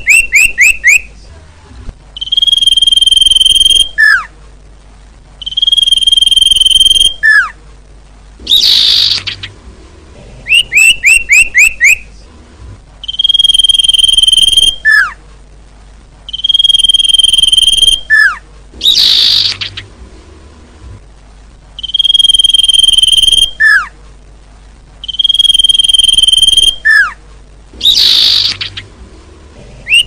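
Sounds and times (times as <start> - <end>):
whistled bird call: 0.0 - 1.1, 2.2 - 4.3, 5.4 - 7.6, 8.5 - 9.5, 10.5 - 12.1, 13.0 - 15.2, 16.3 - 19.8, 21.8 - 23.9, 25.0 - 27.2, 27.8 - 28.8.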